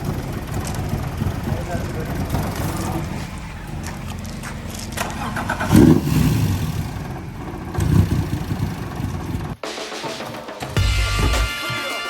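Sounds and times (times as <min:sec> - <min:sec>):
car engine running: 0:00.0 - 0:09.6.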